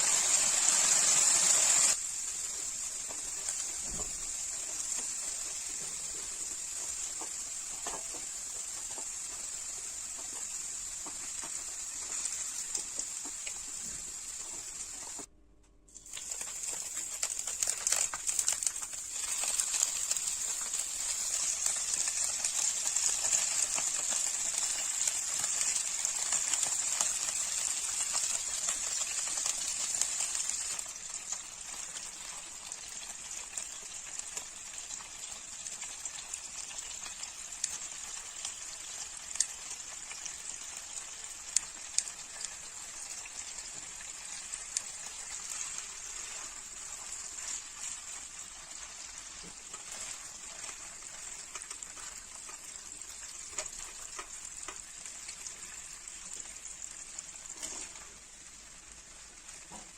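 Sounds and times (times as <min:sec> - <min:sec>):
food sizzling in hot oil: 0:00.0 - 0:15.3, 0:15.9 - 0:59.9
oil crackling pops: 0:15.9 - 0:31.6.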